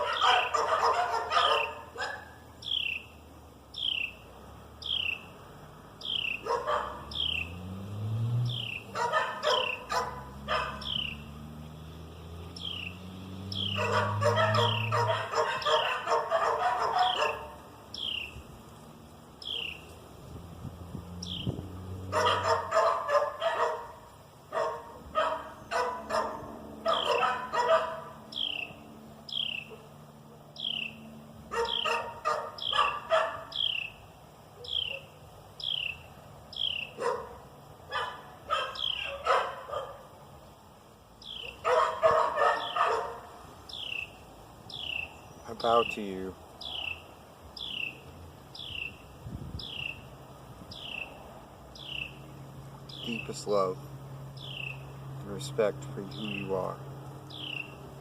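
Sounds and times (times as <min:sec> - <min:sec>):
dog barking: 0:00.0 - 0:02.4, 0:06.4 - 0:07.2, 0:08.9 - 0:10.9, 0:13.7 - 0:17.6, 0:22.1 - 0:28.2, 0:29.6 - 0:30.0, 0:31.5 - 0:33.6, 0:34.6 - 0:35.2, 0:36.9 - 0:40.1, 0:41.5 - 0:43.4
high falling animal chirp: 0:02.6 - 0:04.2, 0:04.8 - 0:05.3, 0:06.0 - 0:07.6, 0:08.4 - 0:11.4, 0:12.5 - 0:16.2, 0:28.3 - 0:29.8, 0:30.6 - 0:34.0, 0:34.6 - 0:37.0, 0:38.6 - 0:39.2.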